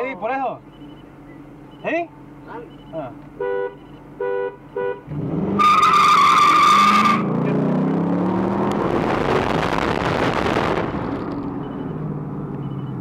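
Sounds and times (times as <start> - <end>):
car engines accelerating: 0.6 - 13.0
tyres squealing: 5.6 - 7.4.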